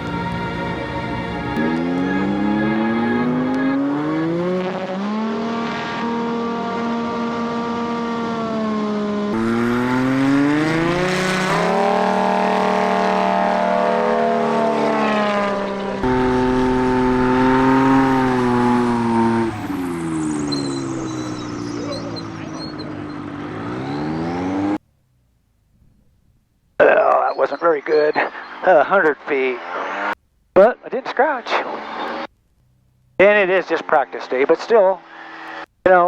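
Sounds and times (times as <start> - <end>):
aircraft engine and propeller: 8.5 - 24.6.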